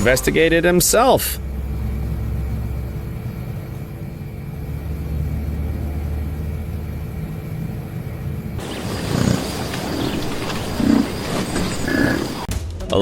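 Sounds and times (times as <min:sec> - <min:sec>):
faint hum tones: 0:00.0 - 0:12.5
steady low rumble: 0:00.0 - 0:12.5.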